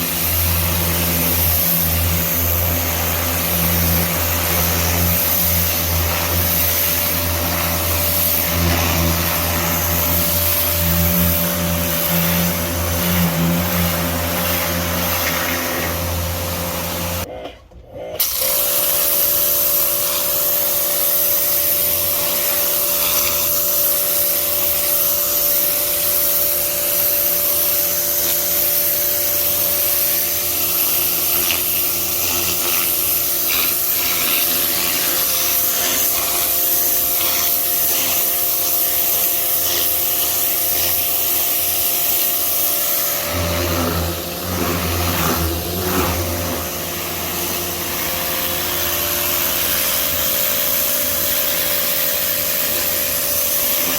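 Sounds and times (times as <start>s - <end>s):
pressure washer motor hum: 0.0s - 17.3s, 18.2s - 53.9s
water jet spraying: 0.0s - 17.3s, 18.2s - 53.9s.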